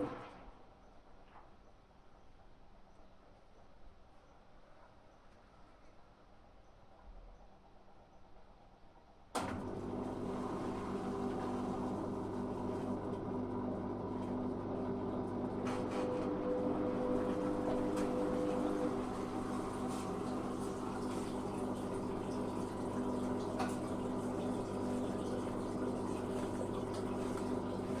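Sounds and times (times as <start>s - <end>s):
washing machine running: 9.4s - 28.0s
water moving through machine: 9.4s - 28.0s.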